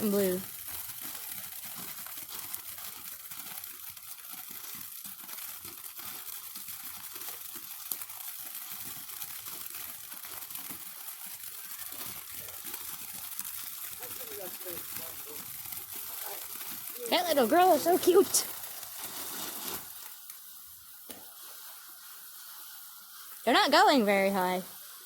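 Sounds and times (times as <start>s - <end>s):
light rustling and crackling: 0.0s - 25.0s
faint outdoor background noise: 11.1s - 25.0s.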